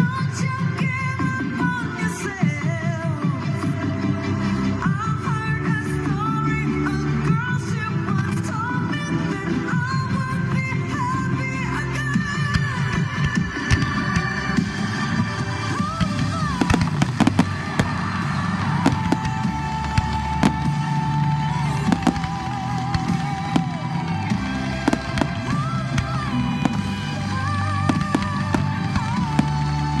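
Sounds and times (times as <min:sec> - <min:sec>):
fireworks bangs and cracks: 0:15.6 - 0:30.0.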